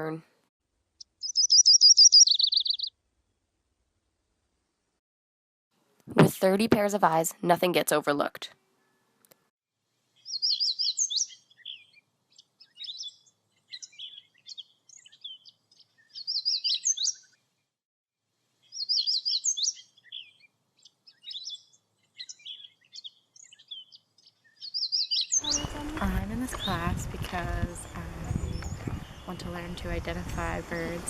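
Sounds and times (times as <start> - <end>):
bird chirps and calls: 1.0 - 2.9, 10.2 - 17.4, 18.6 - 31.0
songbird singing: 1.0 - 3.0, 10.1 - 17.4, 18.6 - 31.0.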